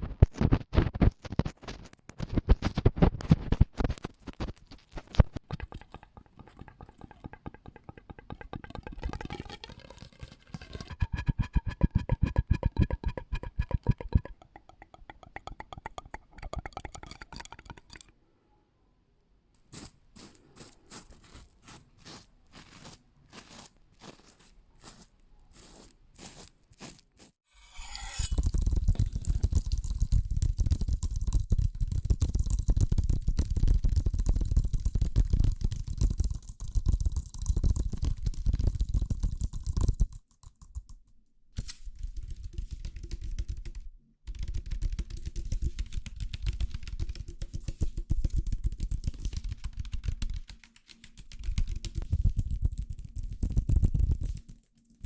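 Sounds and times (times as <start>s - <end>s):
quick tapping: 10.9s - 18.0s
sharp clicks and taps: 10.9s - 18.1s
loud crunching and rustling: 19.7s - 27.4s.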